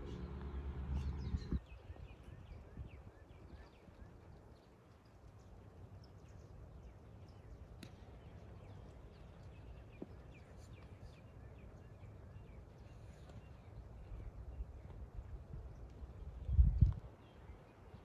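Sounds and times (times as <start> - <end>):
low steady rumble: 0.0 - 1.6
faint birds chirping: 0.0 - 18.0.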